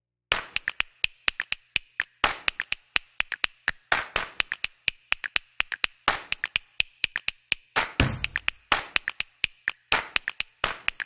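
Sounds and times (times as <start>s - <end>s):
percussive background music: 0.3s - 11.0s
sharp clap-like hits: 0.3s - 11.0s
heavy percussion hits: 8.0s - 8.6s.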